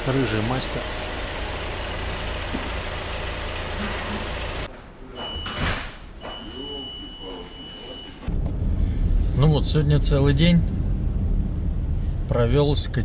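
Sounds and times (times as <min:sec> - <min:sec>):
rumbling vehicle noise: 0:00.0 - 0:04.7, 0:08.2 - 0:13.0.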